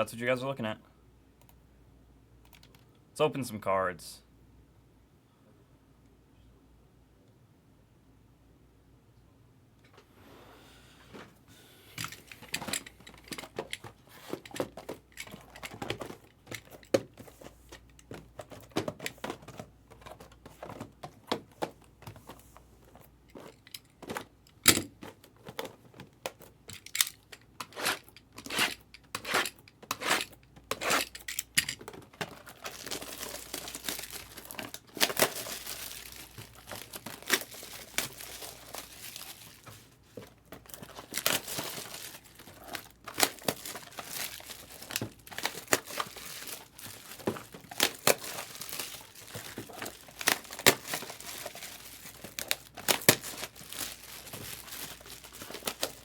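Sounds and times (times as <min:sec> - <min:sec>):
foil card packs crinkling: 0:12.1 - 0:27.3, 0:30.2 - 0:56.0.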